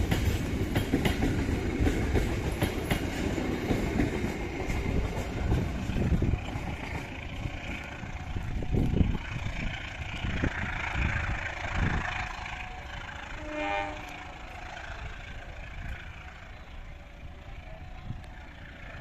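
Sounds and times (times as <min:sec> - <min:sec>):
train wheels knocking on rails: 0:00.0 - 0:12.1
train horn toot: 0:11.8 - 0:15.1.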